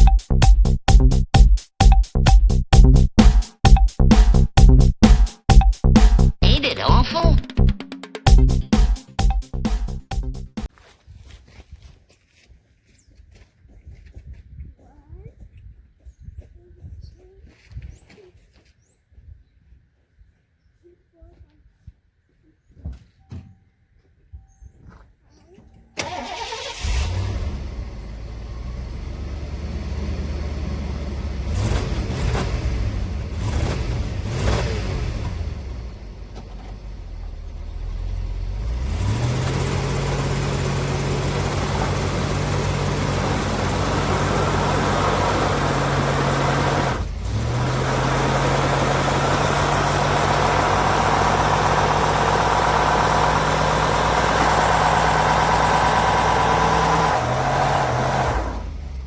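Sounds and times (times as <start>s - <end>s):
car engine revving: 26.0s - 59.0s.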